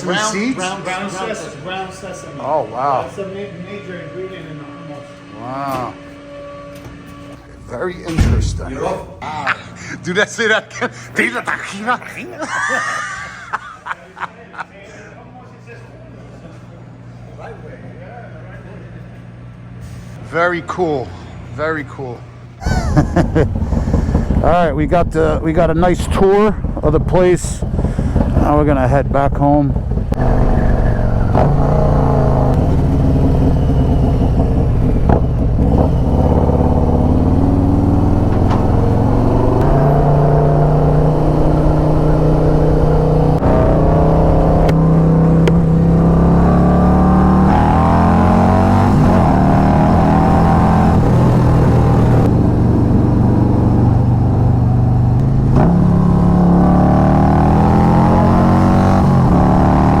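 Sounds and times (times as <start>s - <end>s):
motorcycle engine shifting gears: 23.1s - 24.6s, 26.0s - 60.0s
wind and road rumble: 23.2s - 59.6s.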